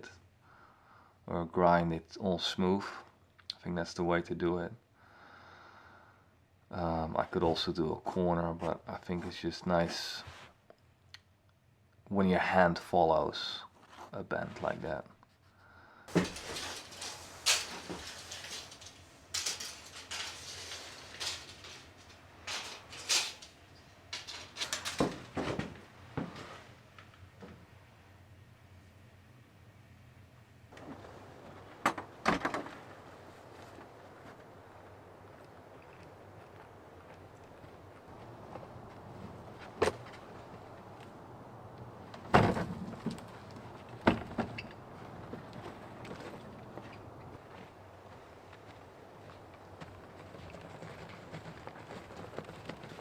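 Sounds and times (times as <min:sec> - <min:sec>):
short rattle: 0:16.1 - 0:26.7.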